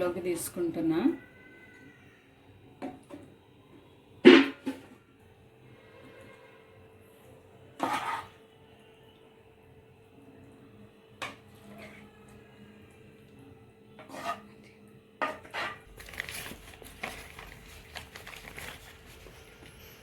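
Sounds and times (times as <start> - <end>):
utensil scraping and clinking pan: 7.8 - 8.3, 14.0 - 14.5.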